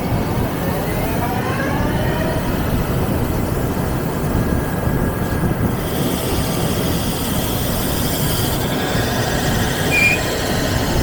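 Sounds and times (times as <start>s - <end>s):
lathe running: 2.3s - 11.0s
faint high whines: 9.8s - 10.5s.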